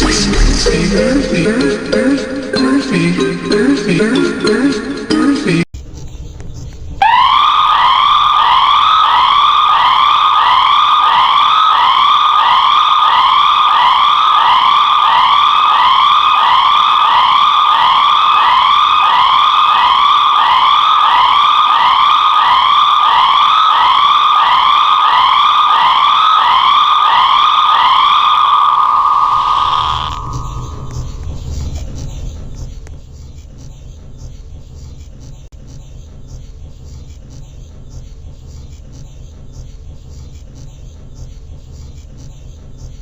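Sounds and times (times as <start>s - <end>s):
siren sweeping upward: 0.0s - 5.1s, 7.0s - 31.7s.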